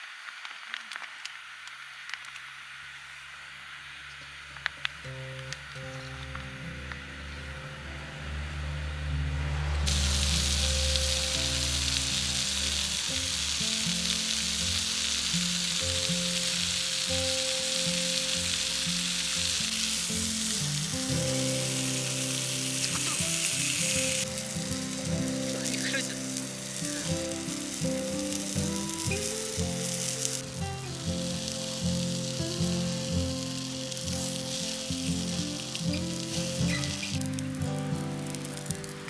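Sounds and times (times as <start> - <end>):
background music: 6.3 - 39.0
food sizzling in a pan: 9.4 - 39.0.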